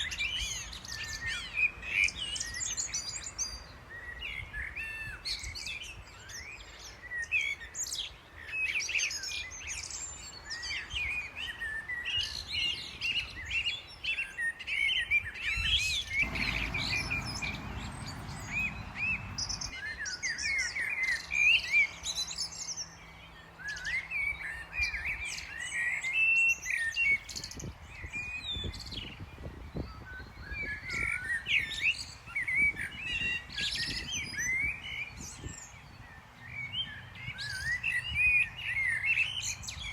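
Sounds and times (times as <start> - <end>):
small birds chirping: 15.6 - 32.3
rush of low noise: 16.2 - 19.8.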